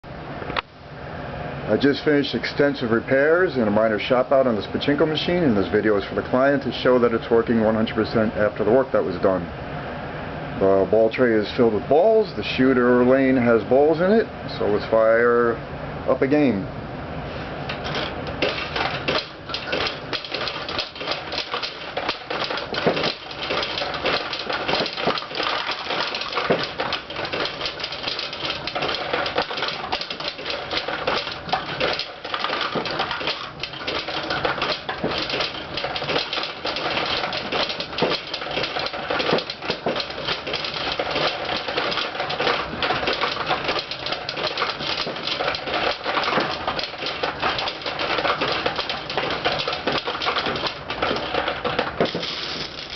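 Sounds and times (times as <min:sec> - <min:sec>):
pachinko balls clattering: 0:17.8 - 0:52.9.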